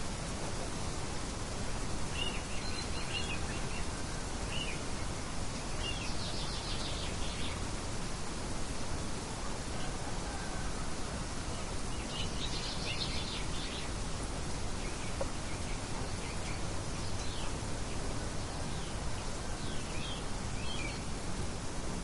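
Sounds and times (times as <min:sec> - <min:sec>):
outdoor ambience hiss: 0:00.0 - 0:22.0
birds chirping: 0:02.0 - 0:07.7, 0:11.6 - 0:21.2.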